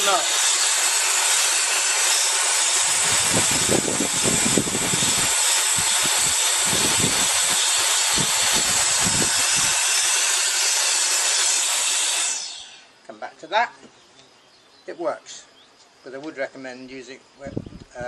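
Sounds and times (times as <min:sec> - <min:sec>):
electric air duster hissing: 0:00.0 - 0:12.9.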